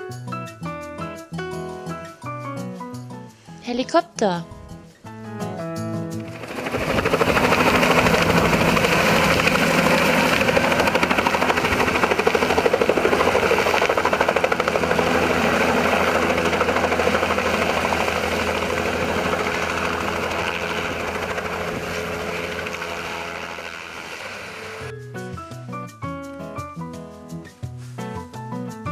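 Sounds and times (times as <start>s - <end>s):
helicopter engine and rotor: 6.2s - 24.9s.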